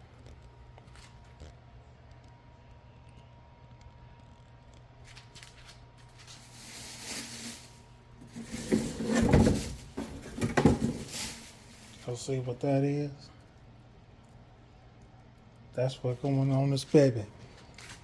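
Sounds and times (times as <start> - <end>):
handling noise rustling and scraping: 5.0 - 12.6.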